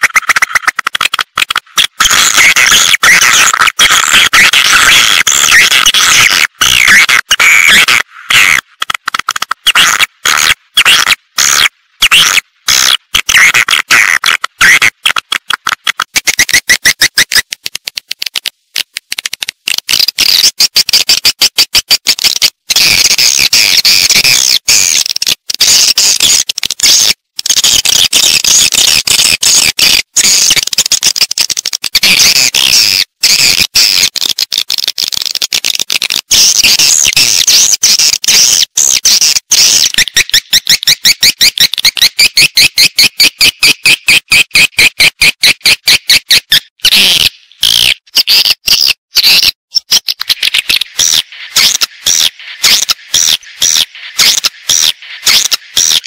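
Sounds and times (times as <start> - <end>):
swiftlets twittering and clicking: 0.0 - 56.0.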